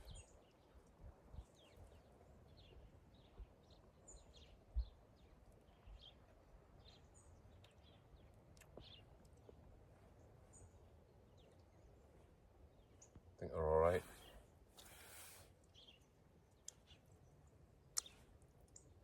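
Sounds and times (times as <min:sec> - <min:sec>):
faint small bird chirps: 0:00.0 - 0:09.6, 0:13.9 - 0:19.0.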